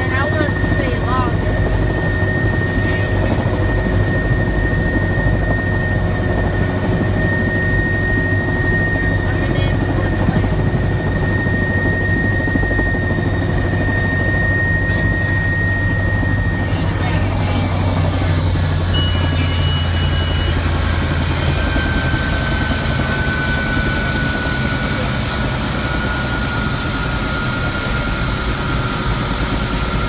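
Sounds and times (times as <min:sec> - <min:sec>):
helicopter engine and rotor drone: 0:00.0 - 0:30.0
high-pitched whine: 0:13.8 - 0:30.0.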